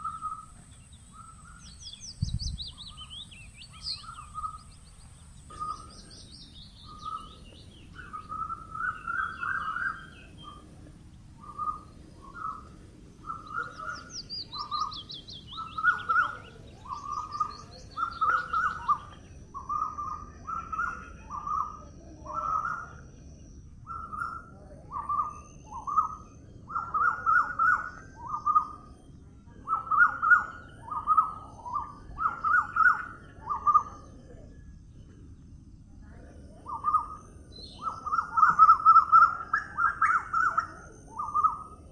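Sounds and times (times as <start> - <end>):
bird chirping low notes: 0.0 - 41.9
faint low rumble: 0.0 - 41.9.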